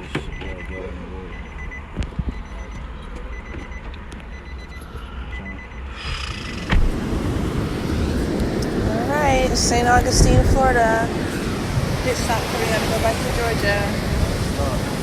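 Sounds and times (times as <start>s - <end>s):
car warning chime beeps: 0.0s - 6.7s
low rumble: 4.4s - 14.8s.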